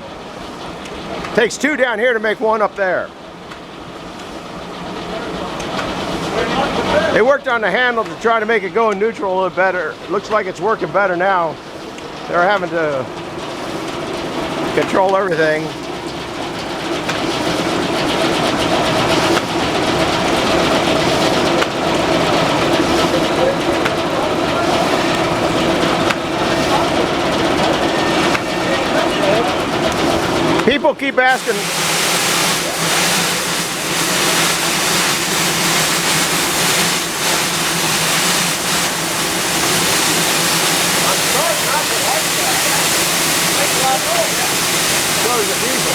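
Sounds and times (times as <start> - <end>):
sawmill circular saw running: 12.3 - 45.9.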